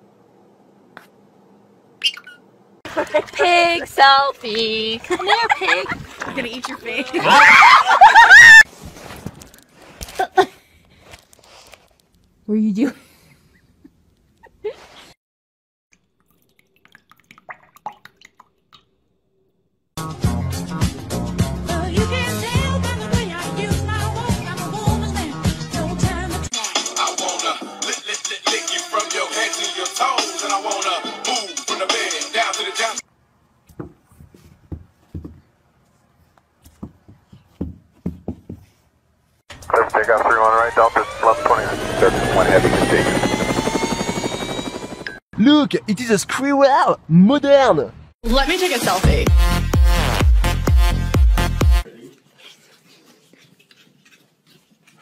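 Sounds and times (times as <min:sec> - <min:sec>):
water dripping and splashing: 0:15.9 - 0:18.9
hip-hop music: 0:21.8 - 0:33.0, 0:48.3 - 0:51.9.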